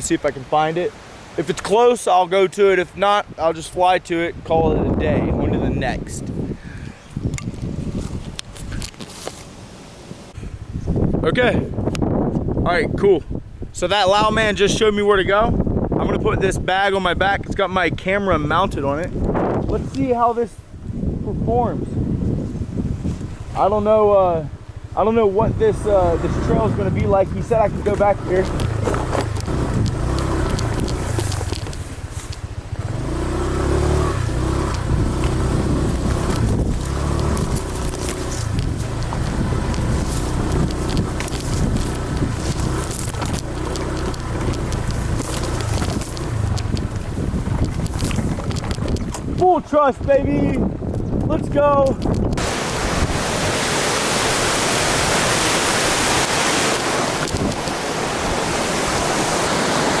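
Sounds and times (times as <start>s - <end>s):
motorbike engine revving: 24.5s - 49.4s
waterfall rushing: 52.4s - 60.0s.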